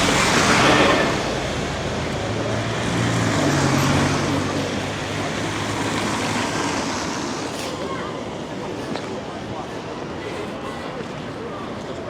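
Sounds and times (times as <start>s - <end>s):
tyres on wet road: 0.0s - 10.1s.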